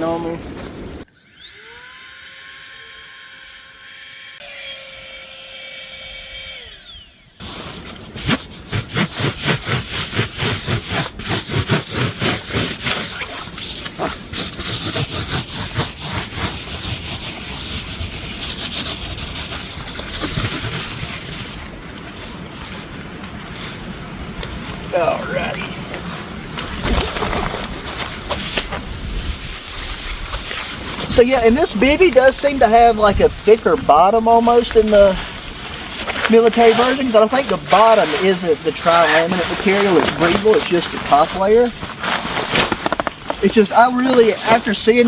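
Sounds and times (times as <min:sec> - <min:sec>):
air pump whining: 0:01.2 - 0:21.6
fast irregular rustling and scraping: 0:07.4 - 0:45.0.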